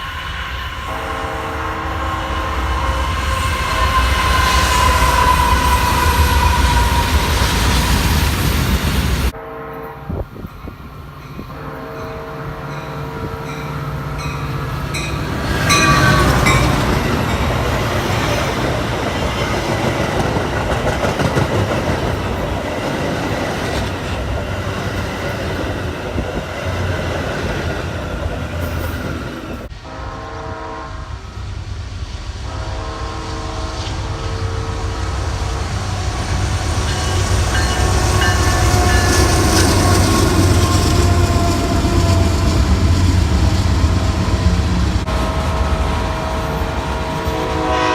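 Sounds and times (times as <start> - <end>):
train horn: 0.0 - 8.2, 9.3 - 20.3, 29.6 - 31.6, 32.4 - 47.9
wind noise on microphone: 0.0 - 47.2
train wheels clattering on rails: 13.5 - 29.7, 36.4 - 45.5.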